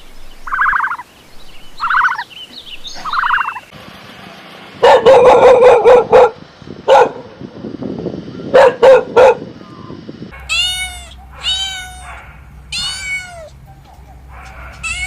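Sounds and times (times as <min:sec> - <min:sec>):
dog barking: 0:04.8 - 0:07.3, 0:08.5 - 0:09.5, 0:10.3 - 0:12.6, 0:13.6 - 0:15.0
cat meowing: 0:10.4 - 0:13.6, 0:14.7 - 0:15.0.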